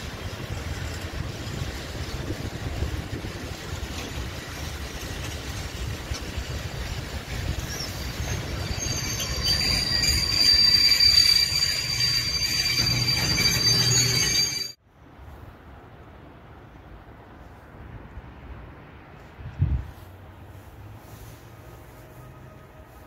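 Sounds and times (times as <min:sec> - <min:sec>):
freight train wheel rumble: 0:00.0 - 0:15.3
high-pitched brake squeal: 0:07.6 - 0:14.8.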